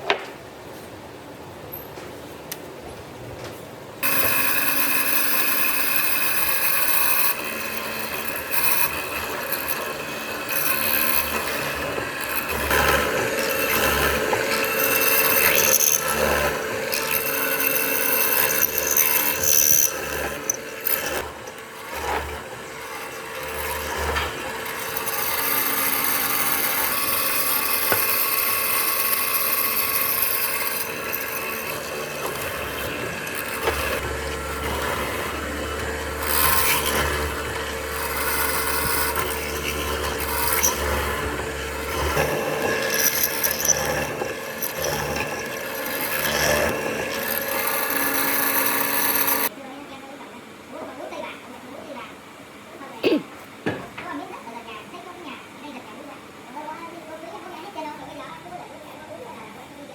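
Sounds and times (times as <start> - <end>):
power tool whirring on wood: 4.0 - 49.5.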